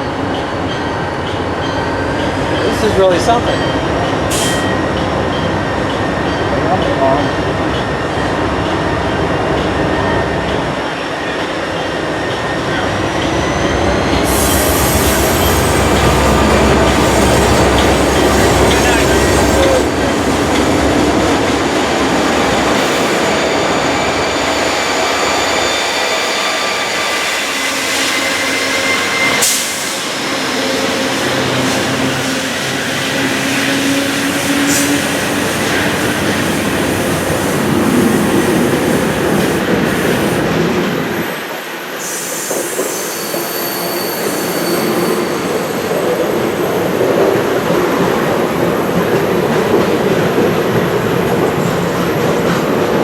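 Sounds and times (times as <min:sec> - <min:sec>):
train running on rails: 0:00.0 - 0:53.0
steel wheels squealing: 0:10.8 - 0:20.9, 0:21.9 - 0:40.3, 0:40.9 - 0:47.0.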